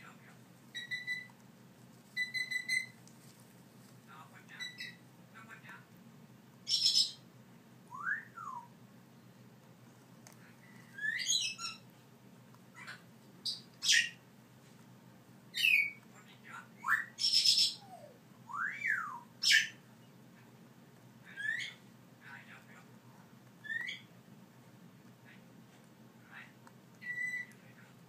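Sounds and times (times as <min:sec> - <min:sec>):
parrot chicks squawking: 0:00.7 - 0:01.4, 0:02.2 - 0:03.0, 0:04.5 - 0:05.0, 0:06.7 - 0:07.2, 0:10.6 - 0:11.9, 0:12.7 - 0:14.2, 0:15.5 - 0:16.0, 0:16.8 - 0:19.9, 0:21.2 - 0:21.9, 0:23.6 - 0:24.1, 0:27.0 - 0:27.6
parrot chicks whistling: 0:00.7 - 0:01.4, 0:02.1 - 0:03.0, 0:04.6 - 0:05.0, 0:06.7 - 0:07.2, 0:07.9 - 0:08.8, 0:10.6 - 0:11.9, 0:12.8 - 0:14.2, 0:15.5 - 0:16.0, 0:16.8 - 0:19.8, 0:21.3 - 0:21.8, 0:23.6 - 0:24.1, 0:27.0 - 0:27.6.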